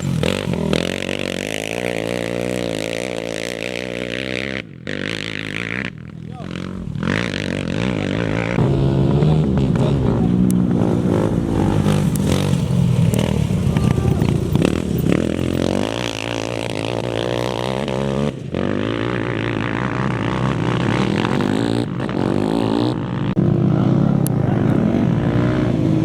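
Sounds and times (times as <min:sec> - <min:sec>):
racing engines revving: 0:00.0 - 0:26.0.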